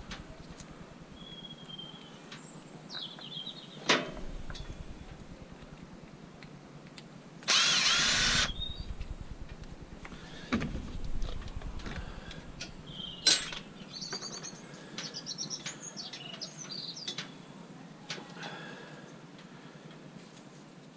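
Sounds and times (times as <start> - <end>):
power drill running: 7.4 - 9.1.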